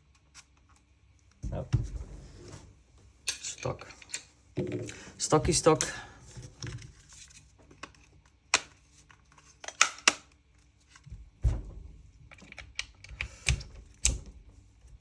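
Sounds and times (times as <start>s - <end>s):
gun parts clicking and knocking: 3.2s - 5.0s, 7.8s - 10.4s, 12.3s - 14.2s
dull thump: 11.4s - 12.0s.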